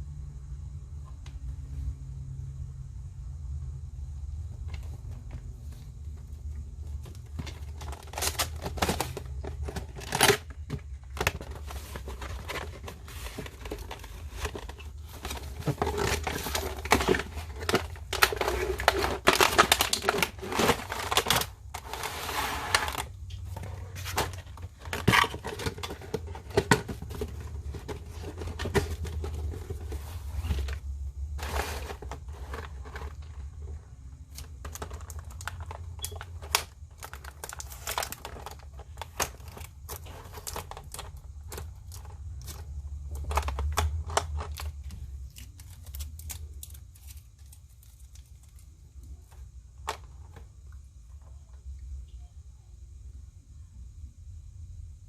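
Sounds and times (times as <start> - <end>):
low steady hum: 0.0 - 55.0
packaging crinkling and tearing: 7.0 - 33.7, 34.3 - 48.8.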